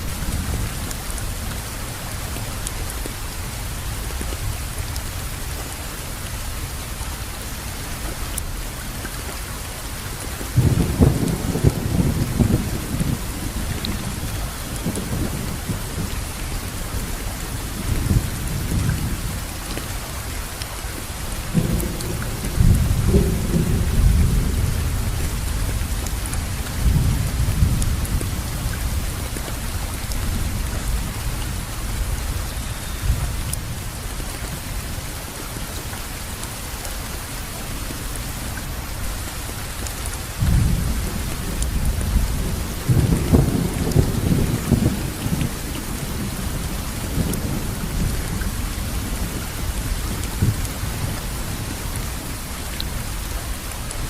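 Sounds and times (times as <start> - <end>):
steady rain: 0.0 - 54.0
low thunder rolling: 10.6 - 16.2, 40.4 - 51.7.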